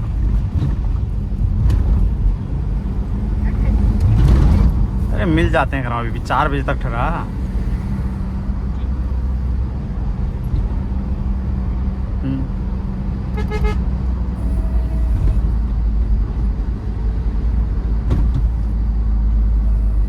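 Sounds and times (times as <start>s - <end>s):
vehicle engine and tyres rumbling: 0.0s - 20.0s
vehicle horn toot: 13.3s - 15.7s.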